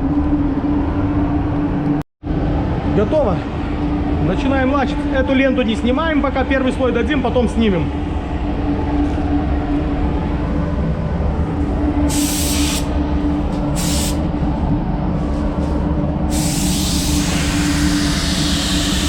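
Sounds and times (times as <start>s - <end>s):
low machine rumble with hum: 0.0s - 19.0s
spray gun hissing: 12.1s - 12.9s, 13.8s - 14.2s, 16.3s - 19.0s.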